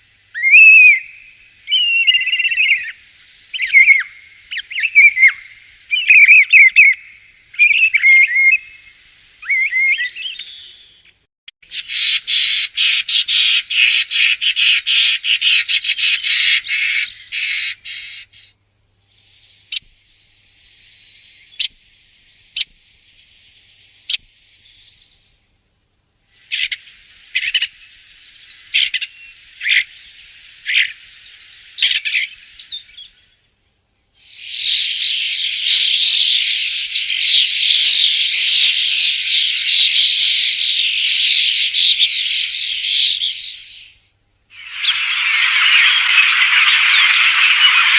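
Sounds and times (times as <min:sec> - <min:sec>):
starling chattering and whistling: 0:00.4 - 0:01.1, 0:01.7 - 0:07.0, 0:28.5 - 0:33.1, 0:44.5 - 0:47.9.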